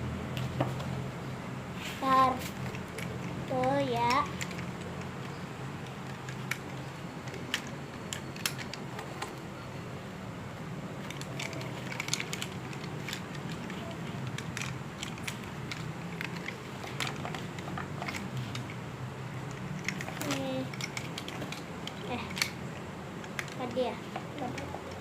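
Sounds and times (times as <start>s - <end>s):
steady low hum: 0.0s - 25.0s
plastic toy robot clicking: 2.5s - 9.4s, 11.0s - 18.8s, 19.5s - 22.6s, 23.2s - 25.0s.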